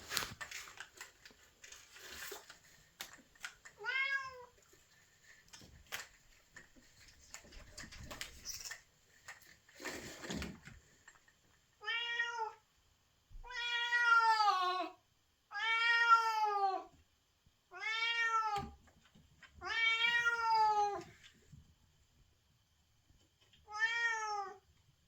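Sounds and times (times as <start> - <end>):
cat meowing: 3.8 - 4.5, 11.8 - 12.6, 13.4 - 14.9, 15.5 - 16.9, 17.7 - 18.8, 19.6 - 21.1, 23.7 - 24.6.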